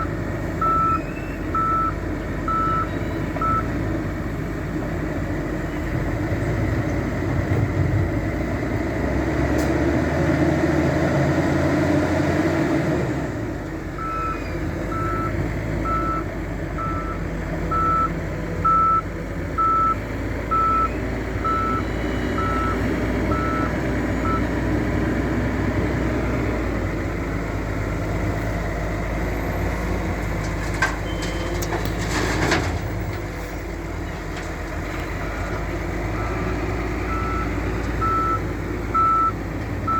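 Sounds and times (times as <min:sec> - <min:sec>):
loader diesel engine working: 0:00.0 - 0:39.9
reversing alarm beeping: 0:00.6 - 0:03.7, 0:14.0 - 0:19.0, 0:19.6 - 0:24.5, 0:37.1 - 0:39.9.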